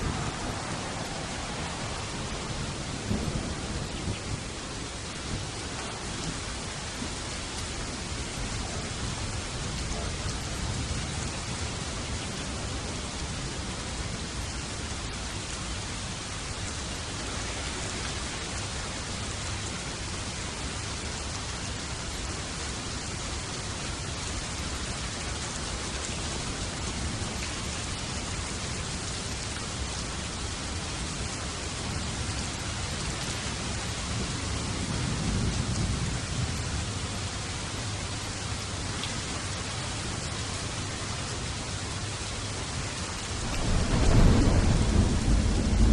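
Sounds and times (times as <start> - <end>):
heavy rain falling: 0.0 - 45.9
distant thunder rumbling: 43.3 - 45.9.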